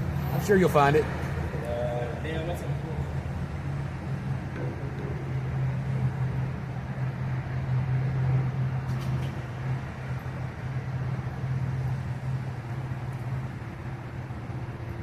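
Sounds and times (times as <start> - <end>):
heavy equipment engine humming: 0.0 - 15.0.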